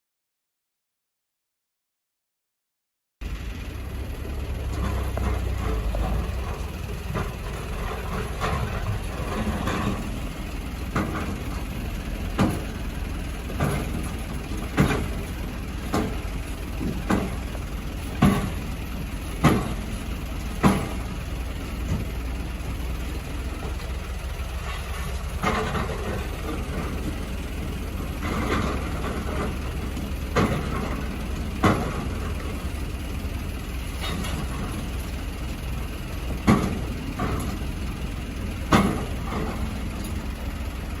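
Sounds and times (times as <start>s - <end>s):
excavator diesel engine running: 3.2s - 41.0s
sharp knocks: 19.4s - 19.8s.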